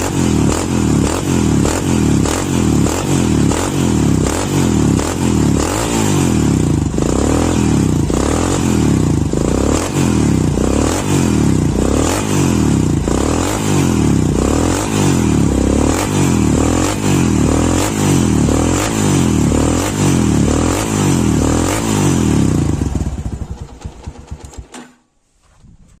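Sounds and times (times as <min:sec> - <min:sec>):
motorcycle engine revving: 0:00.0 - 0:25.0
engine sputtering to a stop: 0:22.6 - 0:25.0.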